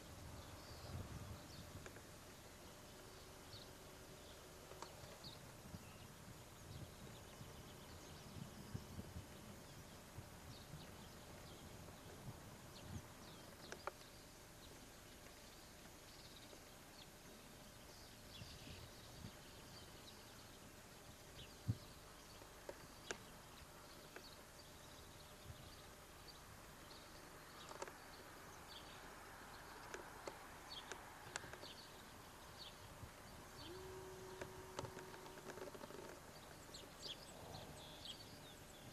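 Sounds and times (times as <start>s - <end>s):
faint bird chirps: 2.7s - 38.9s
sharp clicks: 27.6s - 28.0s.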